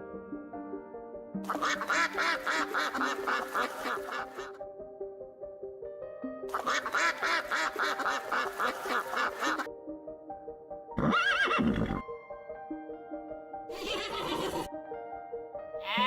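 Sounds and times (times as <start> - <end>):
soft background music: 0.0 - 16.0
duck quacking: 1.5 - 4.6, 6.5 - 9.7
horse whinny: 11.0 - 12.0, 13.7 - 14.7.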